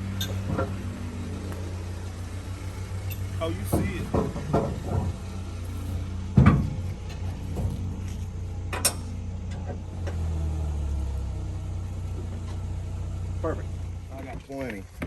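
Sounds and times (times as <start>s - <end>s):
vehicle engine idling: 0.0s - 15.0s
heavy thump: 0.2s - 8.0s
light knocks: 3.1s - 5.4s.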